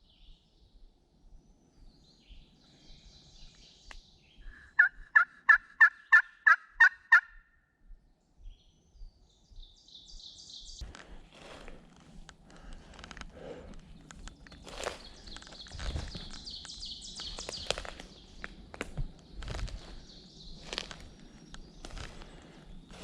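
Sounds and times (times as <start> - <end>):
turkey yelps: 4.8 - 7.4
footsteps rustling through dry leaves: 10.8 - 23.0.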